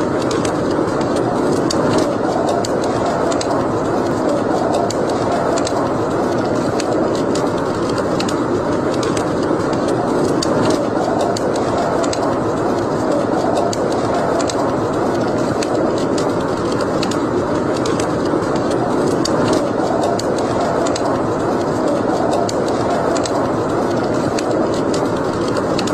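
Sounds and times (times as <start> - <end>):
fire crackling and popping: 0.0 - 25.9
flames rushing: 0.0 - 25.9.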